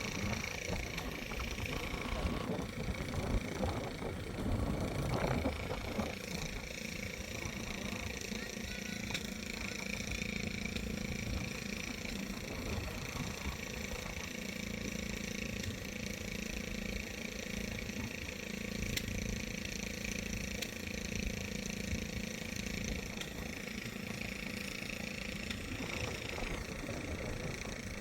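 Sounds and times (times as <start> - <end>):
engine running steadily: 0.0 - 28.0
faint ticks: 18.9 - 19.2.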